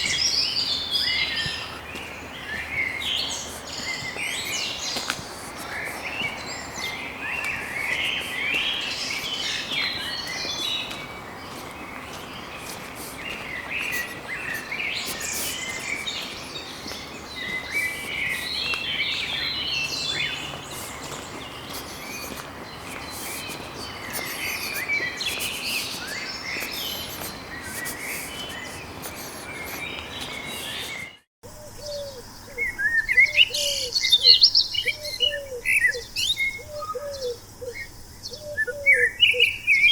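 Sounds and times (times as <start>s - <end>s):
background hiss: 0.0s - 31.2s
rapid high bird chirps: 0.0s - 31.2s
birds singing: 0.0s - 39.9s.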